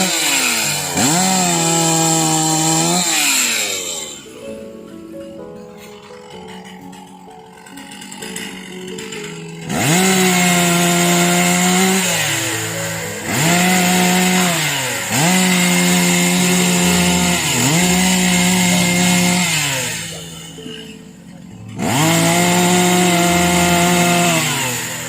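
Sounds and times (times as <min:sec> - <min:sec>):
chainsaw engine revving: 0:00.0 - 0:04.5, 0:05.9 - 0:25.0.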